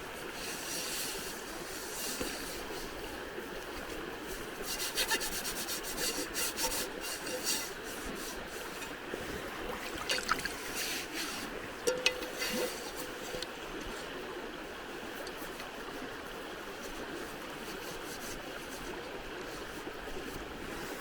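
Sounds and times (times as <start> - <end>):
steady background hiss: 0.0 - 21.0
rasping scrape strokes: 4.6 - 8.9.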